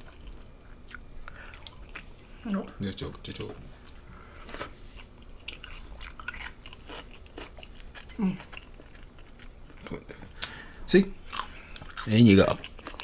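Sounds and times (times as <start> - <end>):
person chewing crunchy food: 0.0 - 2.2, 3.8 - 13.0.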